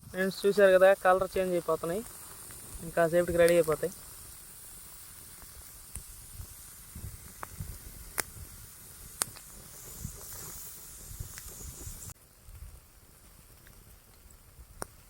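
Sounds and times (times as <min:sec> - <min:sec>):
steam hissing from bamboo: 0:00.0 - 0:13.5
bamboo cracking and popping: 0:07.2 - 0:08.5, 0:09.1 - 0:10.6, 0:12.4 - 0:15.0.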